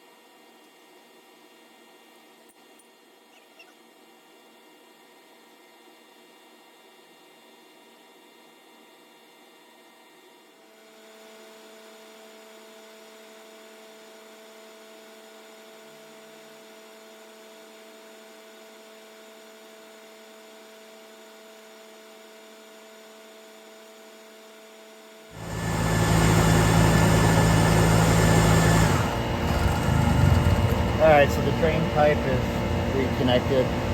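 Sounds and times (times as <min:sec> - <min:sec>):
faint machinery hum: 0:00.0 - 0:33.9
steady tones: 0:25.4 - 0:33.9.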